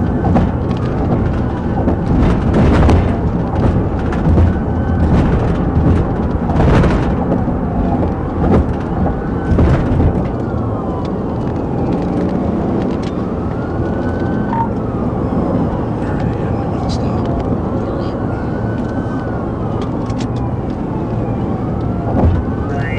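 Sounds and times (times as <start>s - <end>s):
police siren wailing: 0.0s - 22.9s
vehicle and road rumble: 0.0s - 22.9s.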